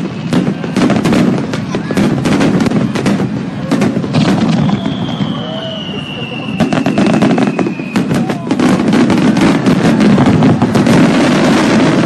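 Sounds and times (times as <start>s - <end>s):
fireworks crackling and popping: 0.0s - 12.0s
descending firework whistle: 0.5s - 12.0s.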